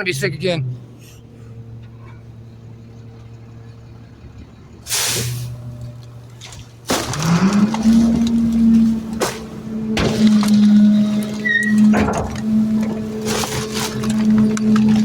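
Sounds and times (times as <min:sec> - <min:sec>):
garbage truck engine: 0:00.0 - 0:15.0
air hiss: 0:04.9 - 0:05.5.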